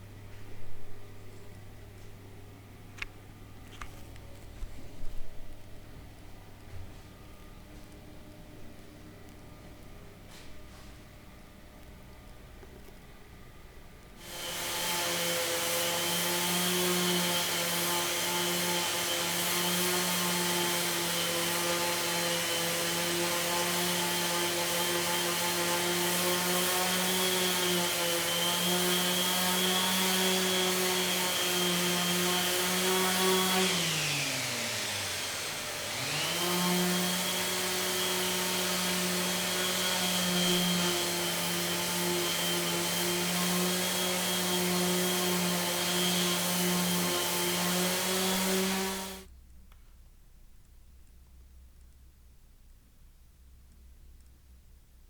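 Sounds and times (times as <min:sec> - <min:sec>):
electric power tool motor humming: 0:14.2 - 0:49.2.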